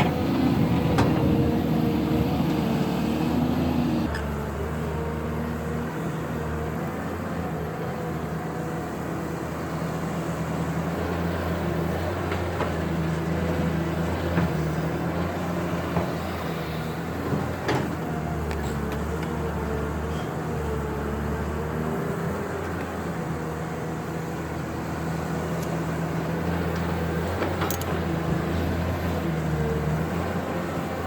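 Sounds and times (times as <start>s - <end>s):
excavator diesel engine: 0.0s - 31.0s.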